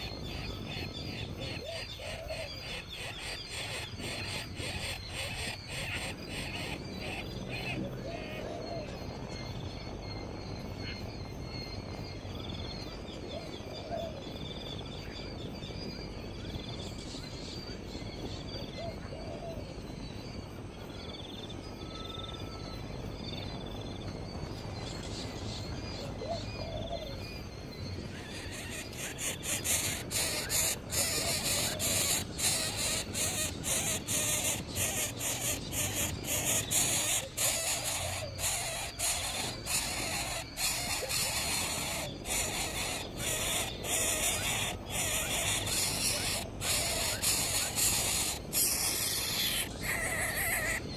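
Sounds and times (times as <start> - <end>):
faint bird calls: 0.0 - 11.7, 24.4 - 50.9
outdoor background noise: 0.0 - 50.9.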